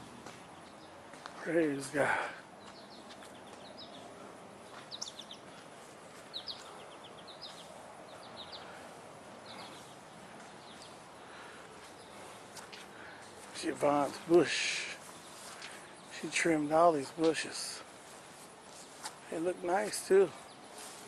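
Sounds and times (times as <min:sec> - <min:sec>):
small bird chirping: 0:02.6 - 0:12.8.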